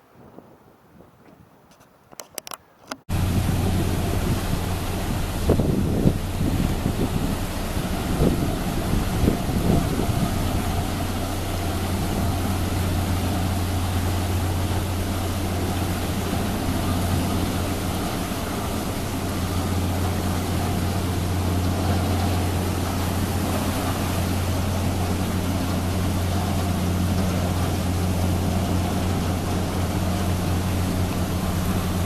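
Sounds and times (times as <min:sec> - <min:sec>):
boat engines humming: 0:02.1 - 0:32.0
higher engine hum: 0:03.1 - 0:32.0.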